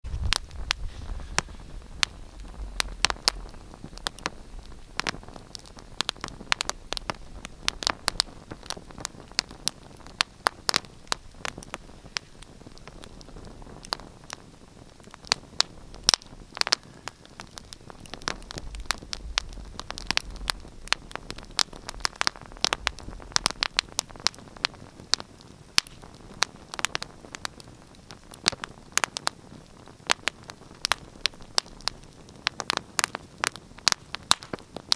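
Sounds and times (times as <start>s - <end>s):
low rumble of flames: 0.0s - 34.9s
wood fire crackling: 0.0s - 34.9s.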